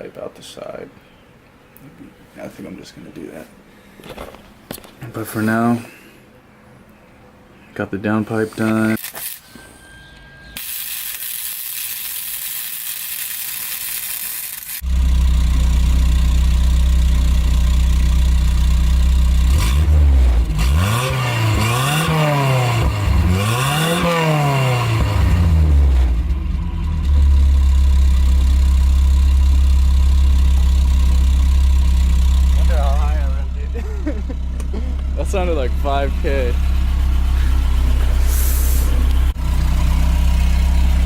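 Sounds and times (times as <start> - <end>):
engine idling and revving: 14.7 - 41.0
car engine starting: 14.8 - 41.0.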